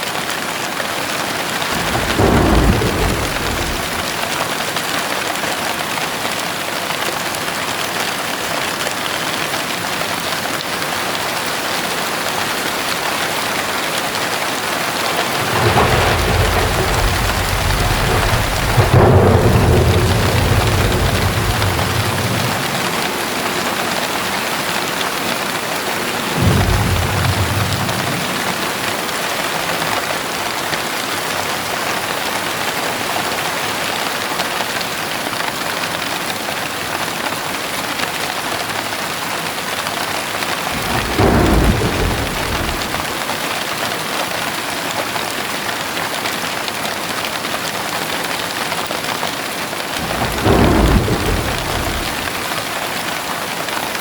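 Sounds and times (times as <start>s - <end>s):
heavy rain: 0.0s - 54.0s
thunder rumbles: 1.6s - 4.6s, 13.2s - 30.4s, 40.4s - 43.4s, 49.9s - 52.9s.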